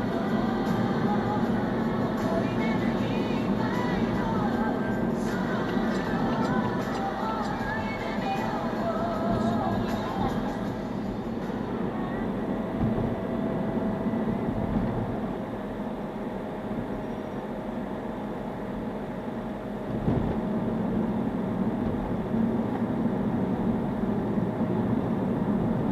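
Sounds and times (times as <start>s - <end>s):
car cabin road rumble: 0.0s - 18.2s, 19.7s - 25.9s
faint steady whine: 0.0s - 25.9s.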